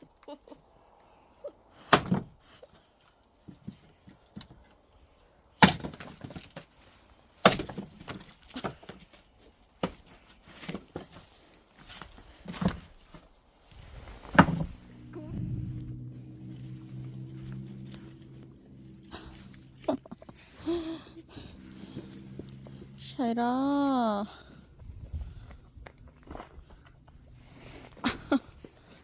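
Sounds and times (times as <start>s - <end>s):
axe splitting wood: 5.6s - 6.6s, 7.4s - 8.3s.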